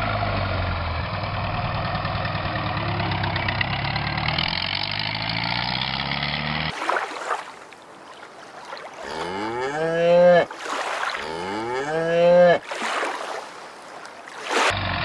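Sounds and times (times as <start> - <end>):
tractor engine running: 0.0 - 6.7
shallow water washing: 6.7 - 9.3, 10.4 - 11.4, 12.6 - 14.8
cow mooing: 9.0 - 10.5, 11.1 - 12.6.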